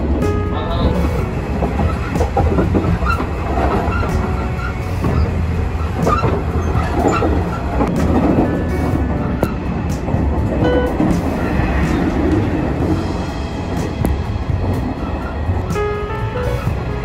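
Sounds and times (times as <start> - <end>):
clatter over rail joints: 0.0 - 17.0
train wheels rumbling: 0.0 - 17.0
wheel squeals: 3.0 - 8.1.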